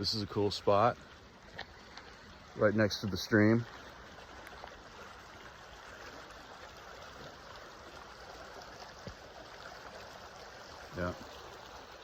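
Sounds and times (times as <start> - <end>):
stream running over its bed: 0.0 - 12.0.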